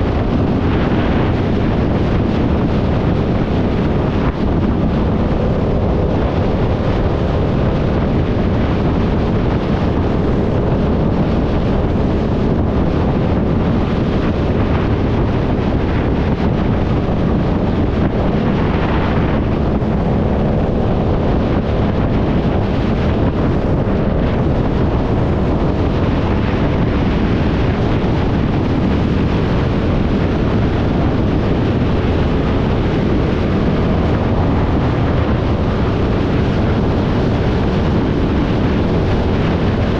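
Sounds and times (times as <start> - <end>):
motorcycle engine drone: 0.0 - 39.9
wind buffeting microphone: 0.0 - 39.9.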